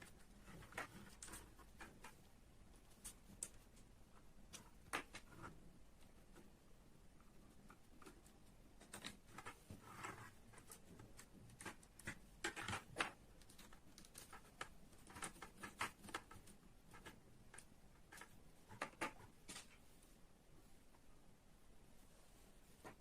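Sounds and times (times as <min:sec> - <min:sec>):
small clicks and light taps: 0:02.9 - 0:06.5, 0:07.2 - 0:19.8.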